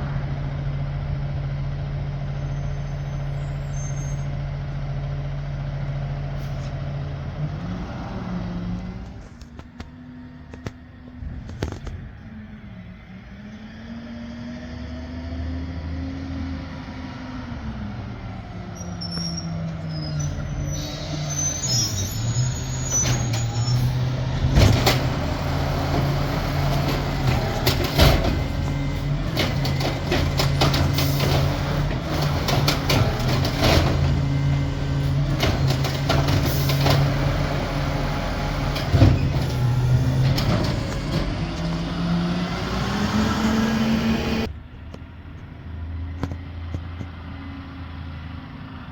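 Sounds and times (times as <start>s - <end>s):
garbage truck engine: 0.0s - 48.9s
sharp knocks and bangs: 24.3s - 34.4s.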